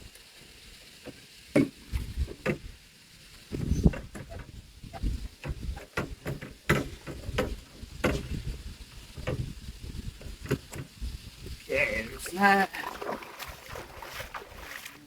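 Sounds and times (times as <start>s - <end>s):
clicks and knocks of sailboat parts: 3.9s - 8.4s, 9.2s - 9.5s, 10.2s - 11.0s.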